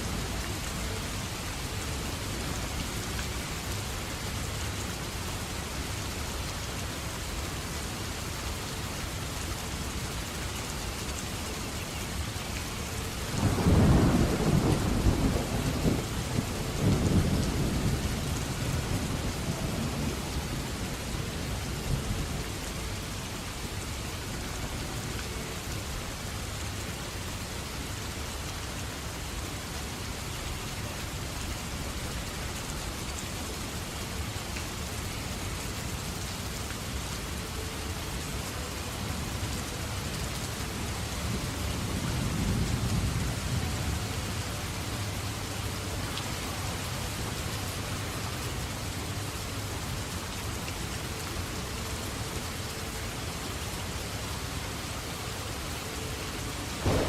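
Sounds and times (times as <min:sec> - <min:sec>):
heavy rain falling: 0:00.0 - 0:57.0
thunder rumbling: 0:13.3 - 0:20.7, 0:56.8 - 0:57.0.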